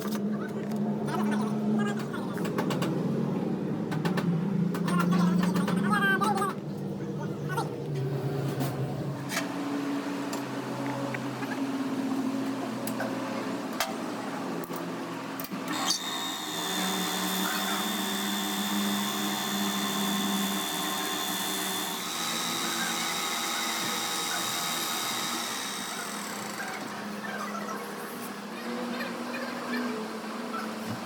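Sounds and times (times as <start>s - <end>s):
workshop clatter and clicks: 1.9s - 3.2s, 3.9s - 6.5s
power tool whining: 15.4s - 27.2s.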